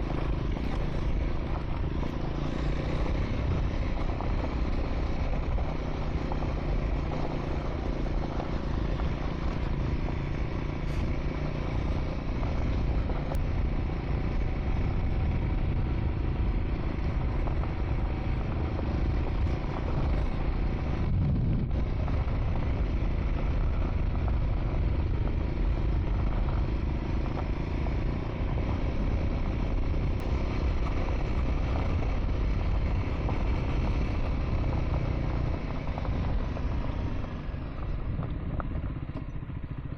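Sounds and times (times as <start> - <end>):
continuous rushing noise: 0.0 - 39.9
motorcycle engine running: 0.0 - 39.9.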